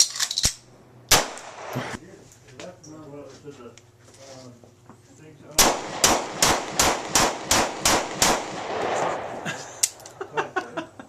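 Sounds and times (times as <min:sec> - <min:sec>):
gunshots with echo: 0:05.6 - 0:09.4.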